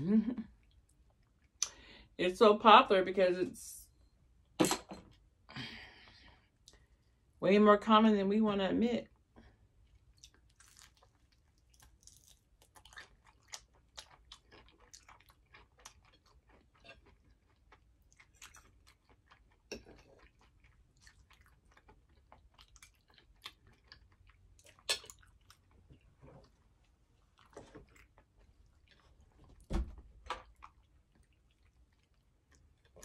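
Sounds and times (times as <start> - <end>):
chewing crispy fried food: 9.7 - 29.6, 30.2 - 33.0.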